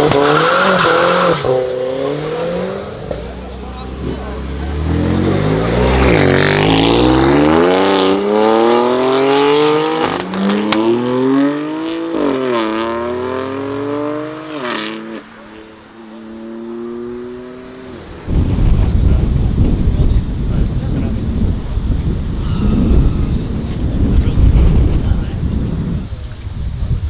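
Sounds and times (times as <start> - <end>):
car engine accelerating through gears: 0.0 - 26.1
exhaust crack: 0.0 - 27.0
wind buffeting microphone: 17.7 - 27.0.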